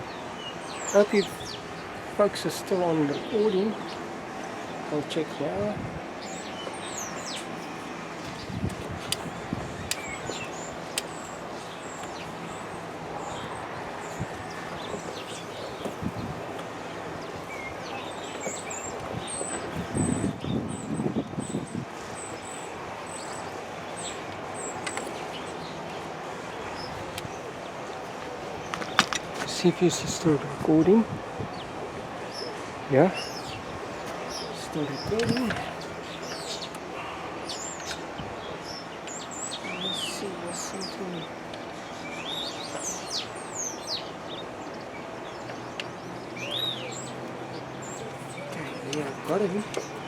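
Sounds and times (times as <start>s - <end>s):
bird chirping: 0.0s - 5.6s, 6.2s - 16.3s, 17.1s - 30.9s, 31.5s - 50.0s
steady background hiss: 0.0s - 19.8s
outdoor background hiss: 0.0s - 50.0s.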